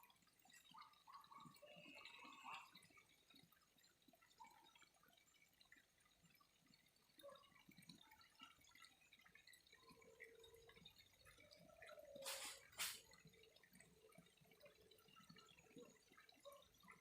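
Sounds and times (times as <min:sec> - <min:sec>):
water trickling and dripping: 0:00.0 - 0:17.0
short hissing bursts: 0:12.2 - 0:13.0.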